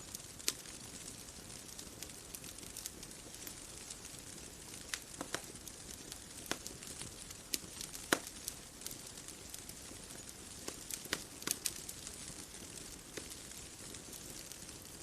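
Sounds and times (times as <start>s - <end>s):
bonfire crackling: 0.0s - 15.0s.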